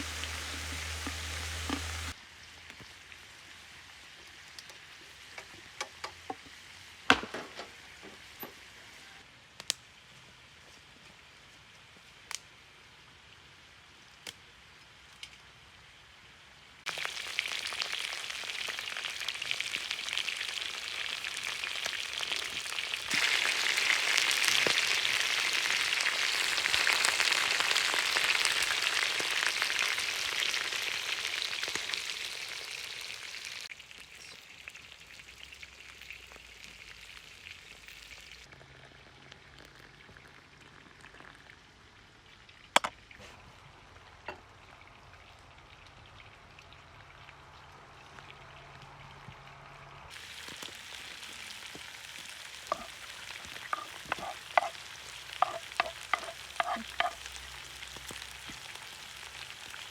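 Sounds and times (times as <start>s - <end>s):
meat sizzling in hot fat: 0.0s - 5.8s, 16.9s - 38.6s, 50.1s - 59.9s.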